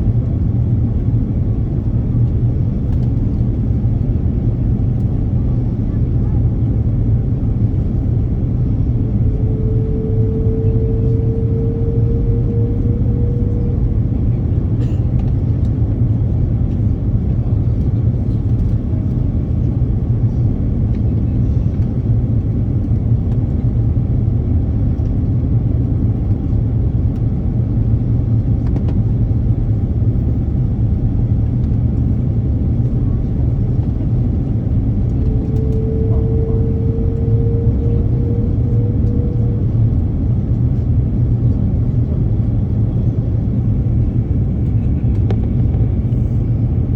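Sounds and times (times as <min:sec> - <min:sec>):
airplane low rumble: 0:00.0 - 0:46.9
faint rising whine: 0:07.8 - 0:14.7, 0:34.7 - 0:40.8.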